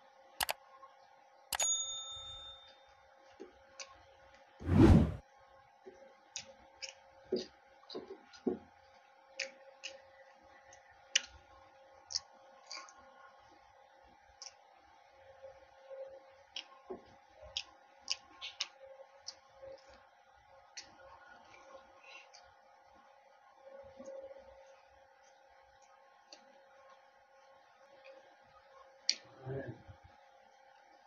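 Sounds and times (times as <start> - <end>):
faint steady hum: 0.0 - 31.0
man chewing food: 17.5 - 20.0.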